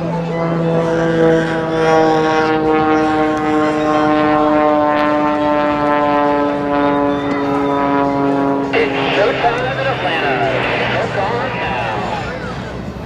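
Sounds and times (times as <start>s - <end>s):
propeller airplane droning overhead: 8.8s - 12.6s.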